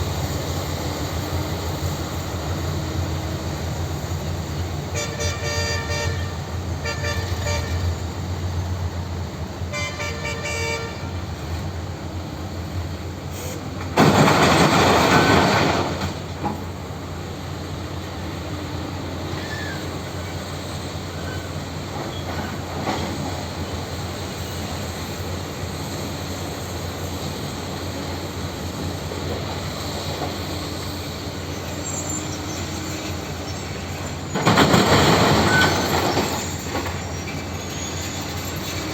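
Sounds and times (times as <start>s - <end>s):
heavy machine engine running: 11.4s - 26.2s, 26.8s - 38.9s.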